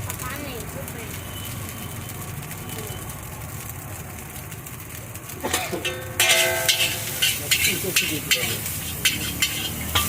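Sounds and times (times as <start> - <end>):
wok clattering while stirred: 5.4 - 10.0.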